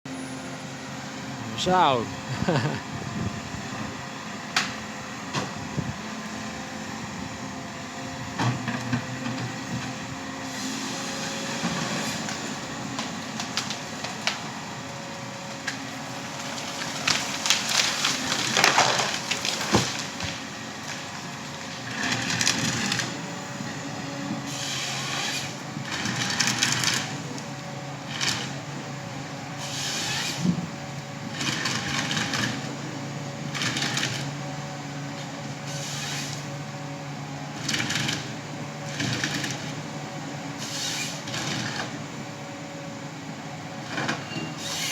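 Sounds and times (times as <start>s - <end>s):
harvester engine running: 0.1s - 40.3s
wood cracking and crushing: 15.6s - 23.1s.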